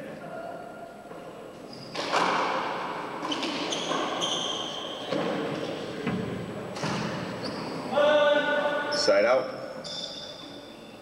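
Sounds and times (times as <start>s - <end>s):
ball smacking off walls with echo: 1.9s - 4.2s.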